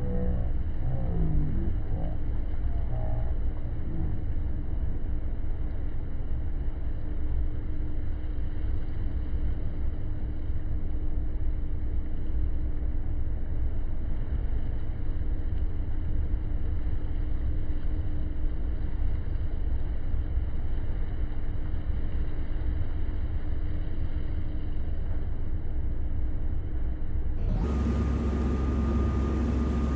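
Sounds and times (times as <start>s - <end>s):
constant hum: 0.0s - 29.9s
boat engine rumbling: 27.4s - 29.9s.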